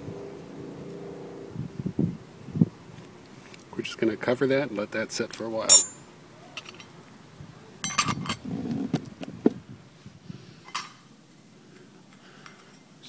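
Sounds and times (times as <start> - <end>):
metal cook pot lid clinking: 5.7 - 5.9.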